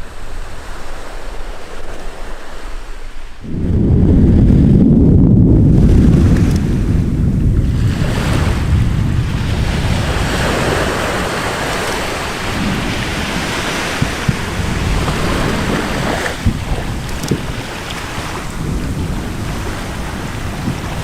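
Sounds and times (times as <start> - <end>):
steady rushing roar: 0.0 - 21.0
deep low rumble: 3.4 - 11.1.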